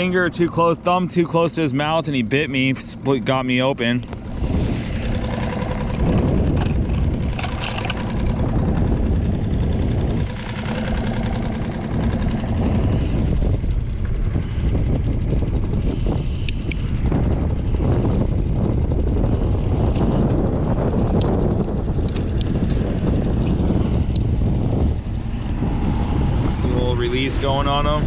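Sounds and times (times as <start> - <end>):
outboard motor idling: 0.0 - 28.0
wind buffeting microphone: 0.0 - 28.0
sharp clicks: 22.0 - 24.3.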